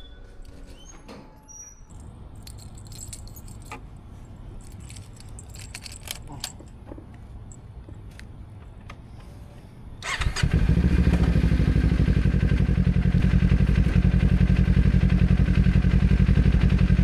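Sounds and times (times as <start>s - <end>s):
keys jangling: 1.6s - 7.7s.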